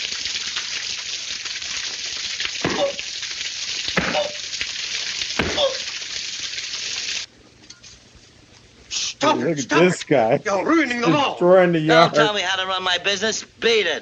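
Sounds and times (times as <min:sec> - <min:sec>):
water spraying: 0:00.0 - 0:07.3.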